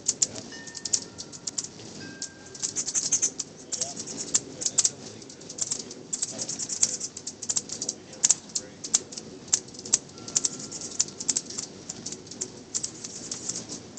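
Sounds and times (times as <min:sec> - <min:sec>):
small birds chirping: 0:00.0 - 0:13.9
whistled bird note: 0:10.1 - 0:11.6.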